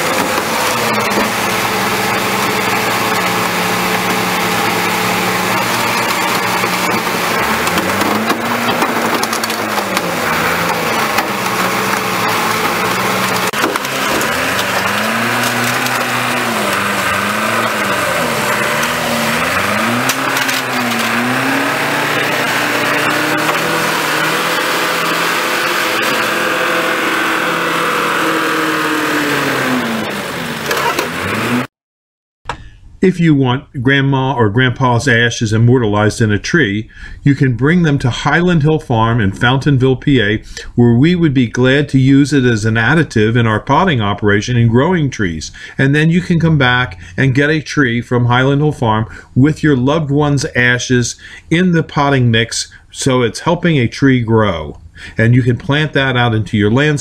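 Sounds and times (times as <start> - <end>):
vehicle cracking and crunching: 0.0 - 31.6
car crusher engine labouring: 0.0 - 31.7.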